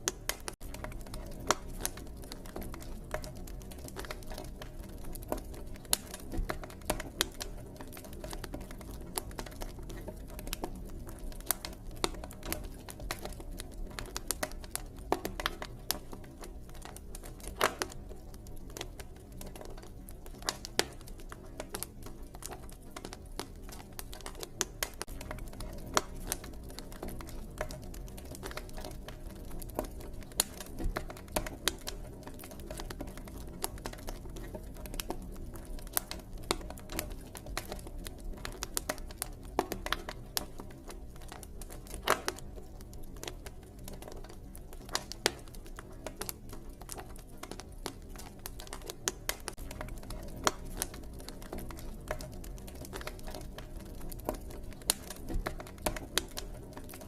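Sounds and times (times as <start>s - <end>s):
campfire wood crackling: 0.0s - 57.0s
low fire rumble: 0.0s - 57.0s.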